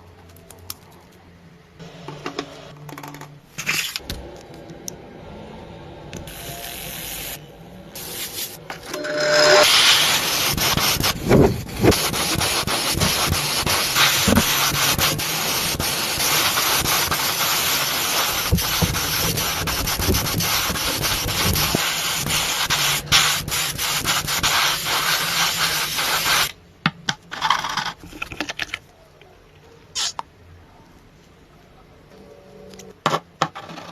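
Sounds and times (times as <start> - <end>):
sanding a surface: 9.1 - 26.5.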